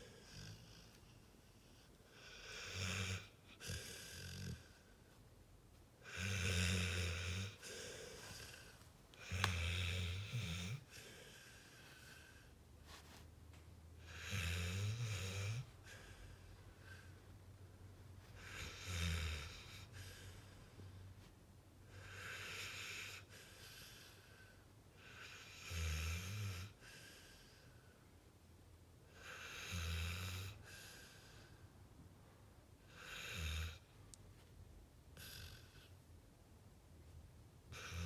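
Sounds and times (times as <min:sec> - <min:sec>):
dog snoring: 0:00.0 - 0:05.0, 0:06.0 - 0:12.5, 0:14.0 - 0:17.1, 0:18.3 - 0:20.5, 0:21.9 - 0:27.7, 0:29.1 - 0:31.5, 0:32.9 - 0:33.9, 0:35.2 - 0:35.9, 0:37.7 - 0:38.0.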